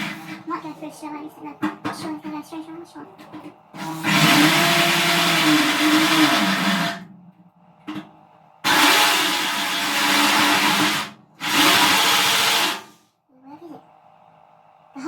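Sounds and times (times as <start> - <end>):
electric drill cutting steel: 3.8 - 7.0, 8.6 - 13.0.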